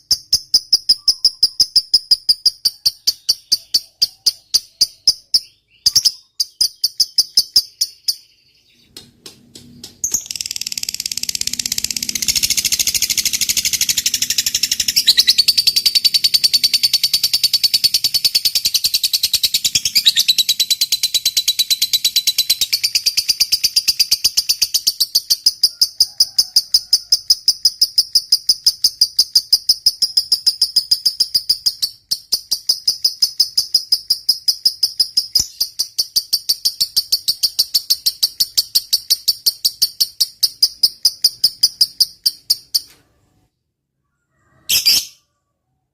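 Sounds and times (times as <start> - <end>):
bird chattering trill: 0.0 - 9.0, 10.0 - 26.6
bird chirps: 0.0 - 45.5.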